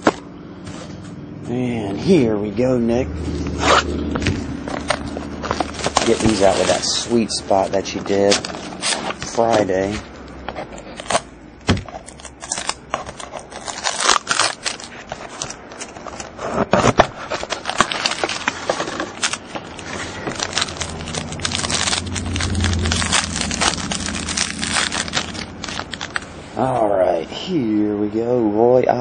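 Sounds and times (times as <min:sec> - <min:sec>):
cardboard and cards scraping: 0:03.3 - 0:26.6
plastic wrapper crinkling and tearing: 0:04.2 - 0:10.0, 0:11.9 - 0:26.5.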